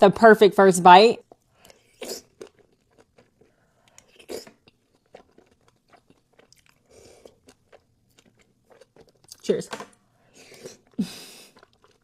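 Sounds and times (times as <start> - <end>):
chewing clicks: 1.3 - 9.4
crunchy bites: 1.7 - 9.5.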